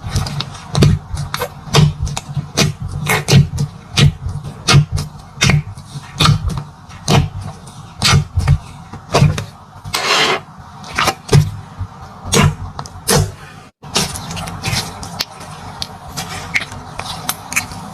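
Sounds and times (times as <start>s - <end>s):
slime squelch: 0.0s - 17.9s.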